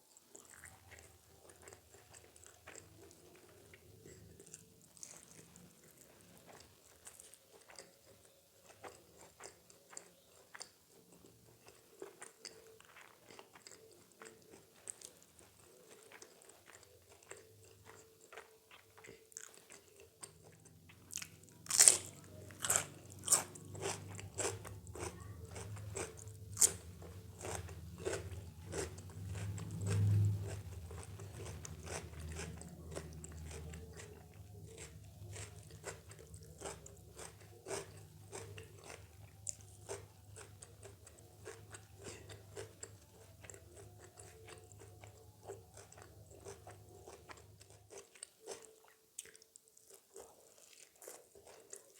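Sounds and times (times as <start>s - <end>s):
soft wet chewing: 0.0s - 51.9s
crisp crunchy bites: 21.1s - 43.0s.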